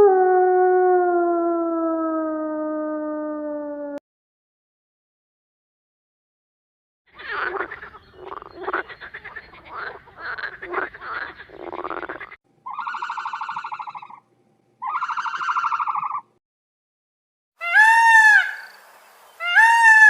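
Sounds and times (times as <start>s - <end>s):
frog croaking trills: 7.2s - 14.2s
short wavering animal calls: 11.2s - 14.2s, 14.8s - 16.3s.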